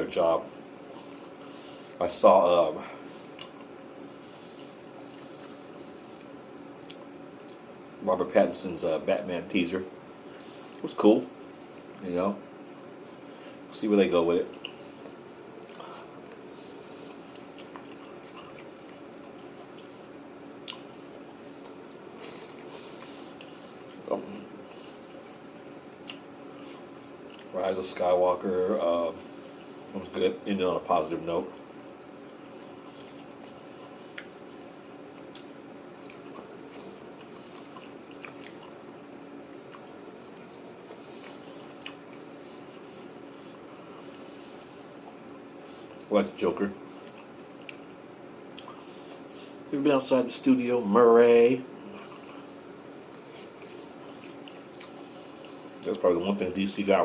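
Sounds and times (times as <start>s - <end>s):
low room hum: 0.0s - 57.0s
person chewing food: 0.5s - 2.0s, 2.9s - 7.7s, 14.5s - 27.6s, 31.5s - 46.1s, 46.8s - 49.7s, 51.7s - 56.0s
small mouth clicks: 6.2s - 7.6s, 35.2s - 38.8s.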